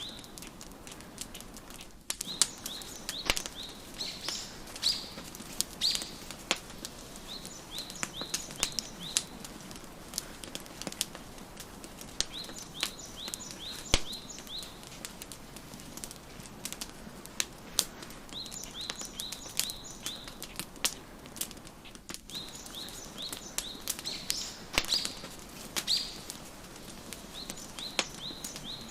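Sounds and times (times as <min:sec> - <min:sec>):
songbird chirping: 0:00.0 - 0:00.5, 0:02.2 - 0:15.3, 0:18.1 - 0:20.7, 0:22.3 - 0:28.9
wood fire crackling: 0:00.0 - 0:28.9.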